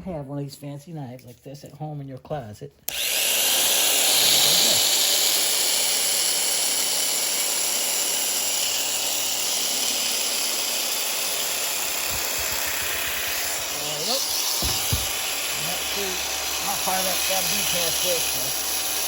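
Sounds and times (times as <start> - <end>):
heat gun blowing: 2.9 - 19.0.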